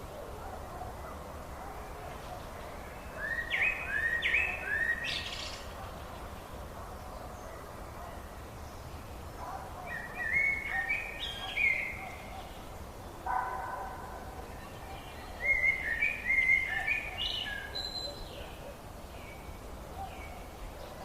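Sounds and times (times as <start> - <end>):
low background hiss: 0.0 - 21.0
songbirds whistling: 2.1 - 6.3, 9.8 - 12.7, 14.6 - 21.0.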